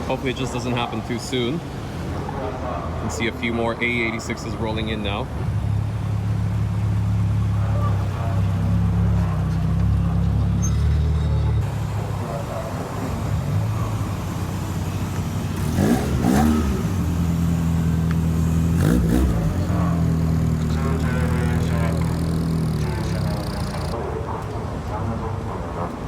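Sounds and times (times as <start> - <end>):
car engines running at low revs: 0.0 - 10.7, 11.6 - 24.0
engine revving: 3.6 - 24.0.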